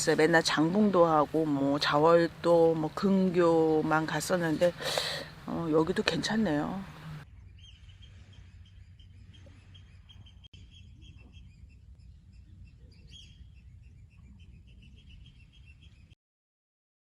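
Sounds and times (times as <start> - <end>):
low outdoor rumble: 0.0 - 15.6
small birds chirping: 3.9 - 16.2.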